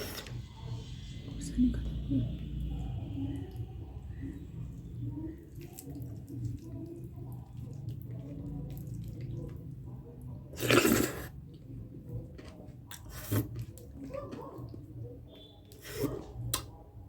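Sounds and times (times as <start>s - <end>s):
wet chewing: 3.4s - 16.8s.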